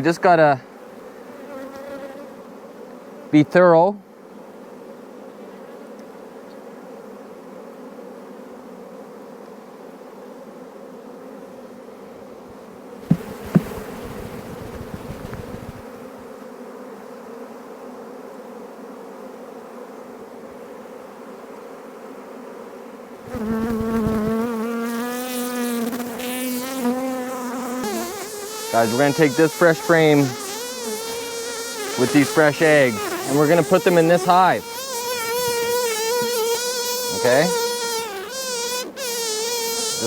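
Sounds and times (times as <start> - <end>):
honeybees buzzing: 0.0 - 40.0
sharp knocks: 13.0 - 15.4.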